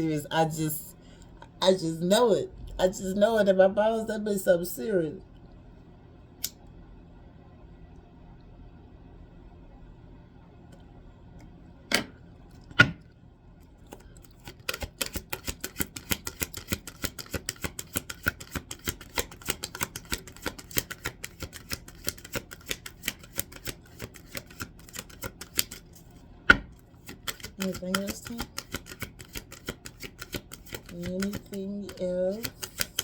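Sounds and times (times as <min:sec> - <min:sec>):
cards being shuffled: 0:14.3 - 0:33.0.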